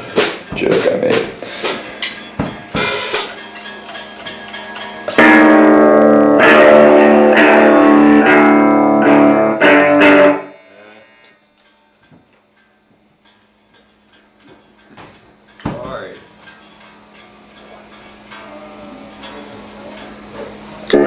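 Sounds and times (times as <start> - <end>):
electric guitar chords: 1.3 - 11.4, 18.1 - 21.0.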